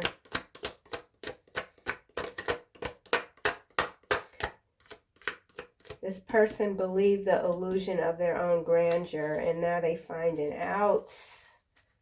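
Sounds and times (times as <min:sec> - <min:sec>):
cards snapping and tapping: 0:00.0 - 0:06.0.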